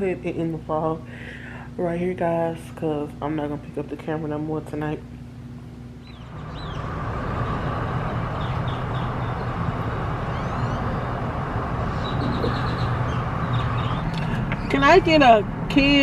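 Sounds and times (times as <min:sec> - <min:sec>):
small birds chirping: 0:06.0 - 0:15.1
car engine idling: 0:06.0 - 0:16.0
rushing noise: 0:06.2 - 0:15.7.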